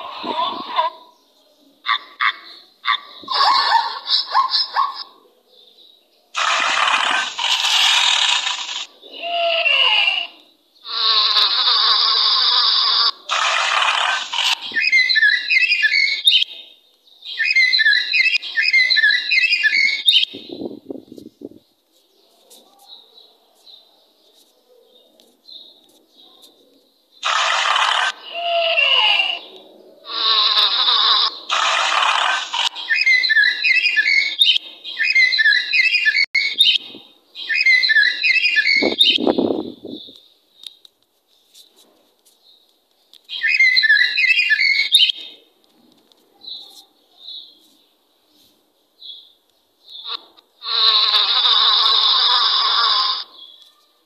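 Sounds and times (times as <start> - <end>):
loud animal call: 6.4 - 16.1, 27.2 - 34.4, 50.0 - 53.5
small bird chirping: 37.4 - 41.6, 42.3 - 45.2.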